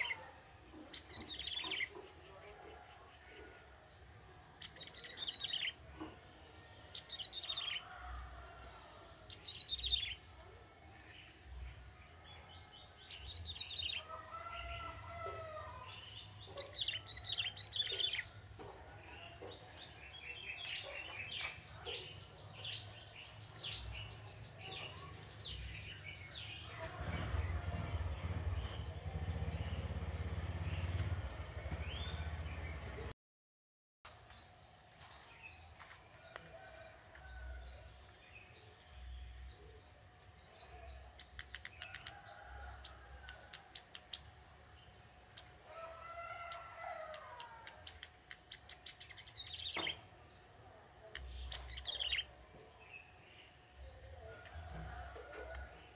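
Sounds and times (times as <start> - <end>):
bird chirping: 0.0 - 3.5, 4.6 - 8.1, 15.8 - 26.7, 46.5 - 55.1
small bird chirping and ticking: 41.1 - 42.2, 43.2 - 44.3, 47.1 - 50.0.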